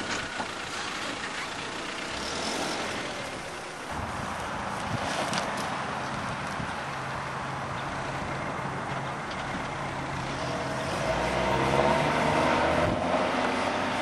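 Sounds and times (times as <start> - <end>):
car engine running: 0.0 - 4.8.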